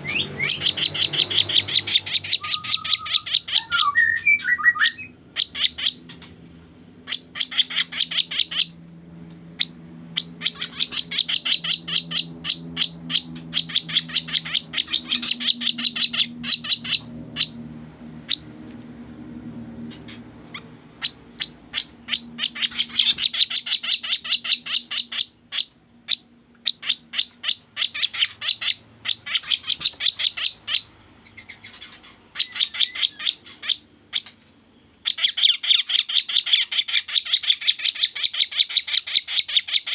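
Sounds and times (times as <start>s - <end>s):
harsh chattering bird call: 0.0s - 6.4s, 7.0s - 8.8s, 9.6s - 17.6s, 19.9s - 34.4s, 35.0s - 39.9s.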